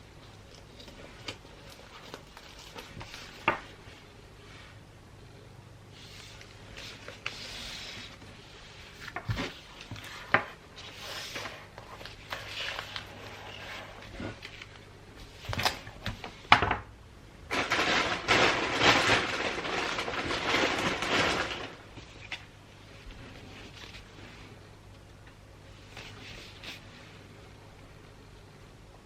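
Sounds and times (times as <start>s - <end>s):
wrapping paper rustling: 0.0s - 4.1s, 6.0s - 16.4s, 17.5s - 24.6s.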